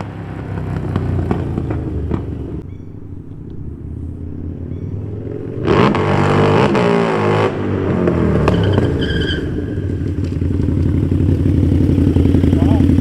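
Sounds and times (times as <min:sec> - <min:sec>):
motorcycle engine revving: 0:00.0 - 0:13.0
brief high squeal: 0:08.4 - 0:10.1.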